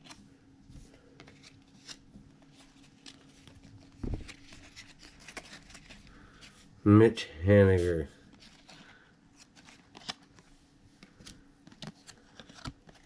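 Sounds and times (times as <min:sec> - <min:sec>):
cards flipped through by hand: 0:00.8 - 0:06.5, 0:07.8 - 0:13.0
dull thump: 0:04.0 - 0:04.3.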